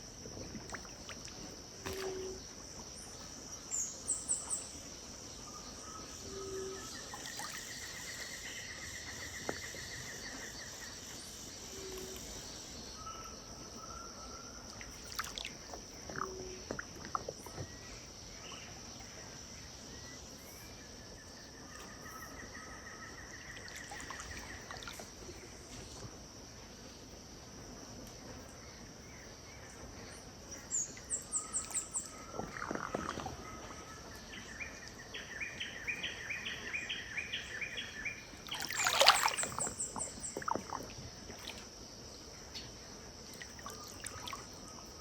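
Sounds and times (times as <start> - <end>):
birds calling: 30.7 - 41.0.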